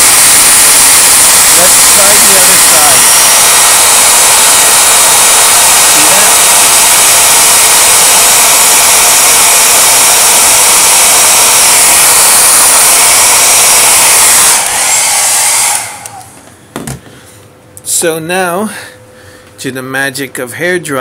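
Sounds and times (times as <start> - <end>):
hair dryer blowing: 0.0 - 16.6.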